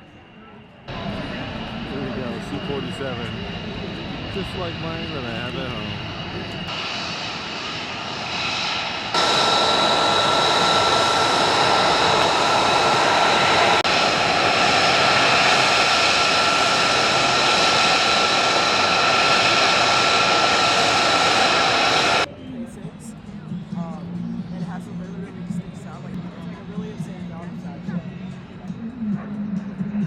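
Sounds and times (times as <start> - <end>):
piston engines droning: 0.6 - 22.3.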